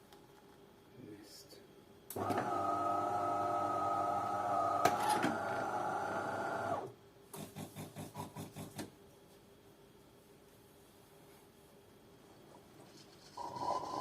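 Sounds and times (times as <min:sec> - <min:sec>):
coffee machine motor hum: 0:02.1 - 0:06.9.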